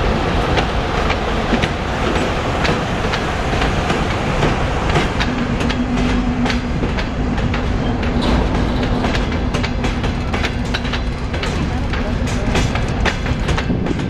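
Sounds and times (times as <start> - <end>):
wheels clicking over rail joints: 0.4 - 14.0
low drone: 3.3 - 12.4.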